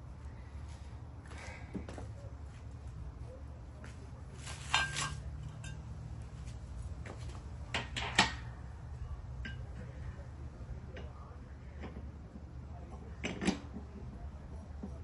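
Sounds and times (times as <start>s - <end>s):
steady low hum: 0.0s - 15.0s
metal tools clinking and knocking: 4.7s - 5.9s.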